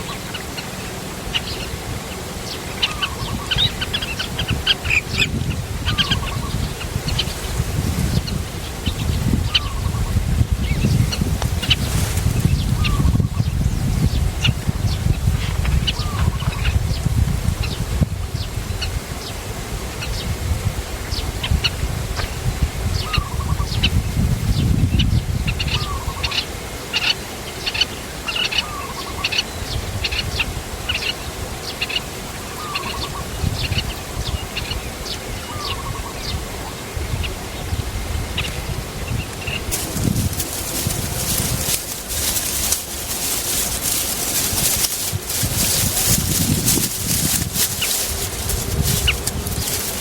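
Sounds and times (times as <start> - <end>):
small birds chirping: 38.4 - 50.0.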